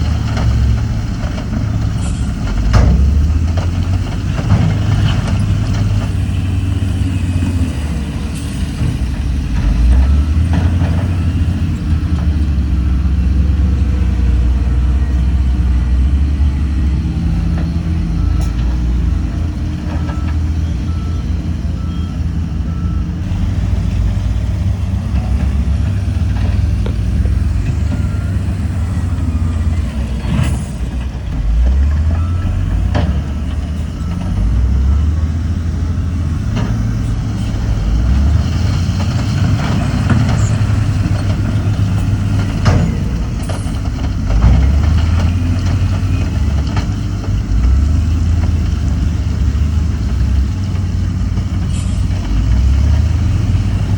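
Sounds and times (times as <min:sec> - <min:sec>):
heavy diesel machinery running: 0:00.0 - 0:53.9
reversing alarm beeping: 0:06.2 - 0:23.3, 0:27.1 - 0:30.9, 0:31.8 - 0:43.8.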